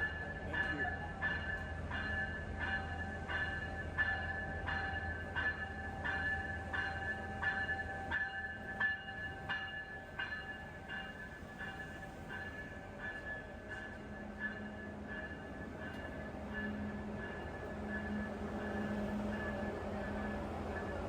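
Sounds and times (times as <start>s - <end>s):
low train hum: 0.0s - 21.0s
railway bell ringing: 0.0s - 21.0s.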